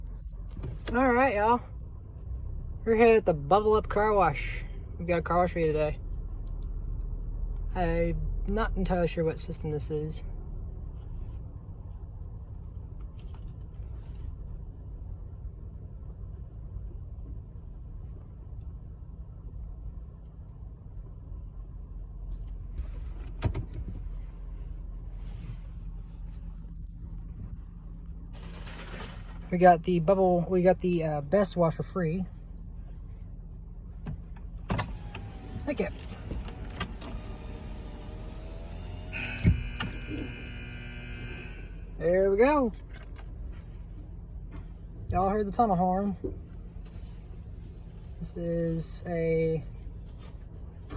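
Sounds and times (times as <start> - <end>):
car engine idling: 23.9 - 50.9
multi-toned horn blast: 39.0 - 41.9.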